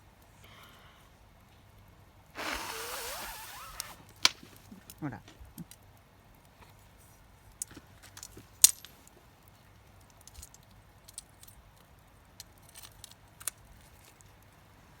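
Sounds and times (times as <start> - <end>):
campfire crackling: 2.2 - 8.1.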